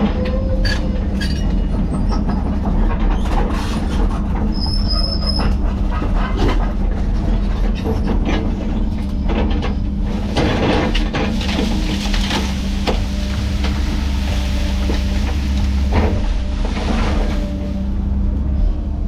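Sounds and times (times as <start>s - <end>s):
heavy diesel machine running: 0.0s - 19.0s
wood cracking and snapping: 10.4s - 17.0s.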